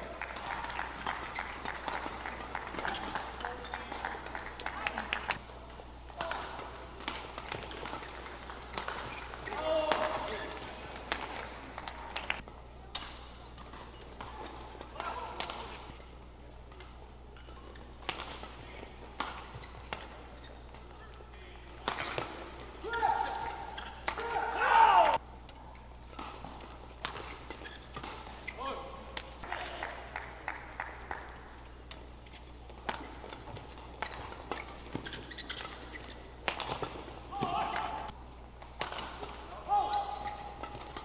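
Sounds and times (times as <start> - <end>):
racket hitting shuttlecock: 6.1 - 16.0, 16.7 - 20.3, 26.1 - 31.2, 32.7 - 41.0.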